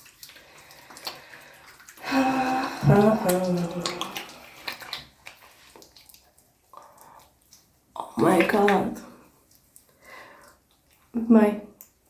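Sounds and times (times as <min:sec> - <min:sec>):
water running at a sink: 0:00.0 - 0:12.0
woman vocalizing: 0:02.0 - 0:04.2.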